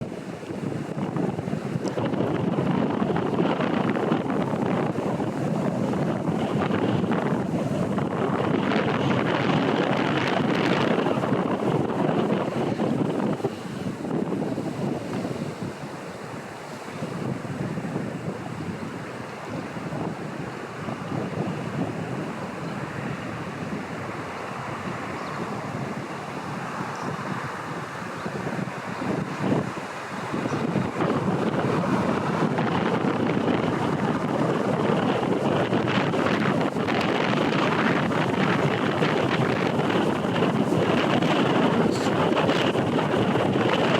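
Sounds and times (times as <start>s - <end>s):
strong wind buffeting microphone: 0.0s - 43.9s
waterfall rushing: 15.6s - 43.9s.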